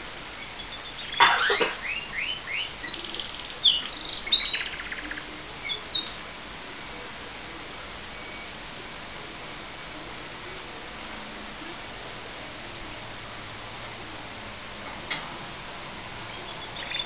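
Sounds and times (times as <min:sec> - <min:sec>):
canary singing: 0:00.4 - 0:06.2, 0:16.3 - 0:17.0.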